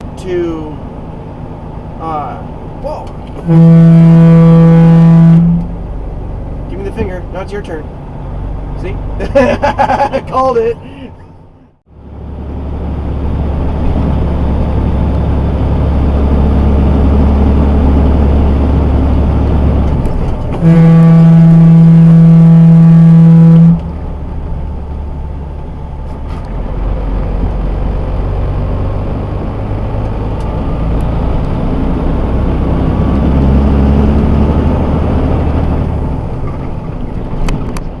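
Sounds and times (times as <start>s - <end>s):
loud truck horn blast: 3.4s - 5.9s, 20.5s - 24.0s
truck engine running: 11.2s - 38.0s.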